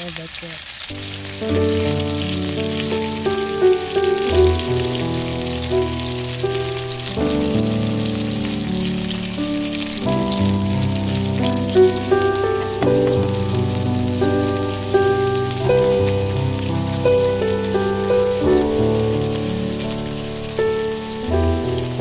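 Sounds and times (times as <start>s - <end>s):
shrimp sizzling in hot oil: 0.0s - 22.0s
background music of held notes: 1.0s - 22.0s.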